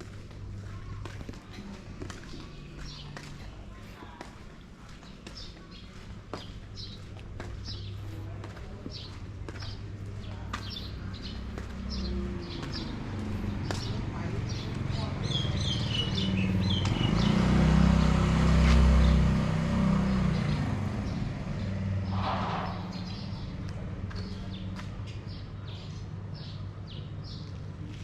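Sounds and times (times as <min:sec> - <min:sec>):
birds chirping: 0:00.0 - 0:27.7
vehicle engine passing by: 0:10.9 - 0:24.9.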